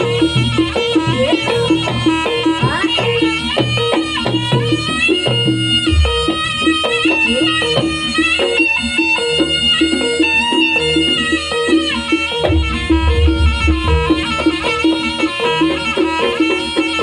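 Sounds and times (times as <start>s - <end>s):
drum beats: 0.0s - 17.0s
reedy wind instrument melody: 0.0s - 17.0s
quick struck notes: 5.6s - 7.4s, 11.9s - 16.0s
heavy low drum hits: 5.9s - 6.7s, 12.5s - 14.9s.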